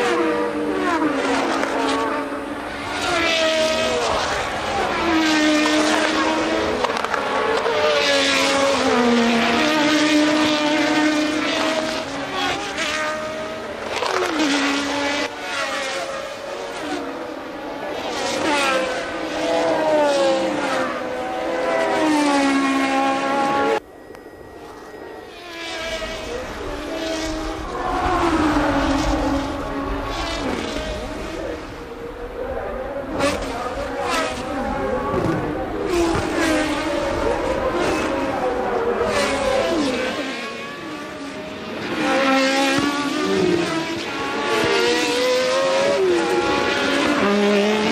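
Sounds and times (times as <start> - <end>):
race car engines passing: 0.0 - 47.9.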